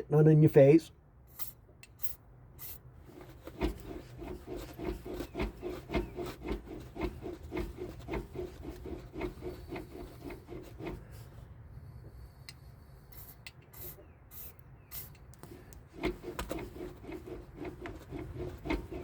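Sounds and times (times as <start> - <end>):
cable rubbing in its housing: 1.4 - 19.0
spray can hissing: 13.1 - 15.2.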